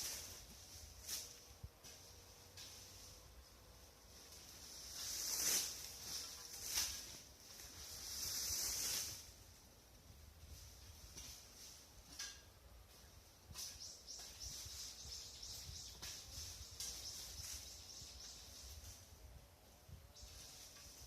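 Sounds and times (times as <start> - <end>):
faint high-pitched chirping: 13.0 - 19.3, 19.9 - 21.0.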